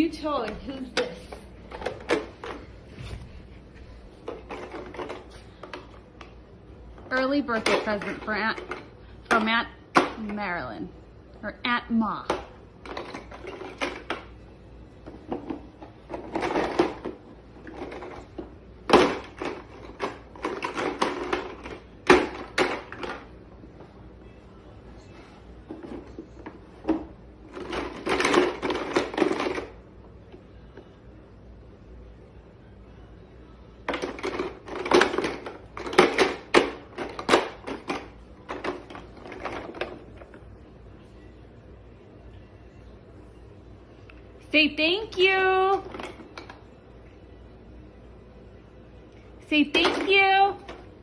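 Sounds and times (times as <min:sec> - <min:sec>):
rustling and clattering: 0:01.0 - 0:06.0, 0:15.0 - 0:23.3, 0:33.9 - 0:40.5
toy truck clattering and knocking: 0:25.7 - 0:29.8.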